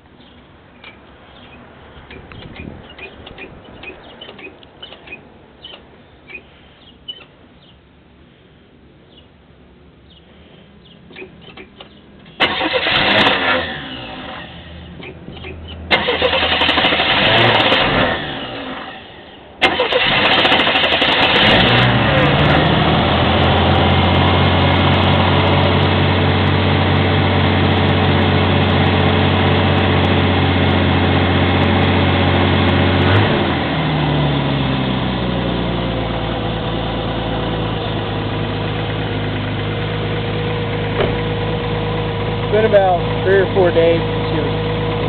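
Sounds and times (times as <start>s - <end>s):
car engine idling: 10.8s - 45.0s
engine cranking: 11.4s - 19.0s, 19.6s - 22.0s.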